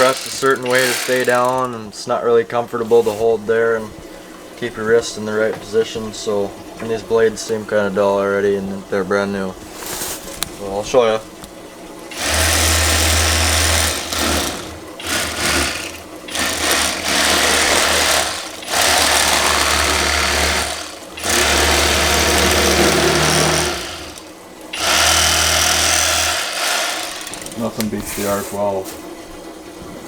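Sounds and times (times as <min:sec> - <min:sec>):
electric fillet knife buzzing: 0:00.0 - 0:01.8, 0:12.1 - 0:27.9.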